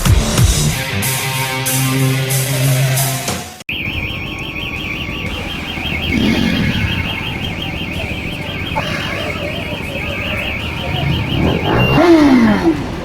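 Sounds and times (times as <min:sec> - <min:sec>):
electronic alarm warbling: 0:03.7 - 0:12.6
low traffic rumble: 0:03.7 - 0:13.0.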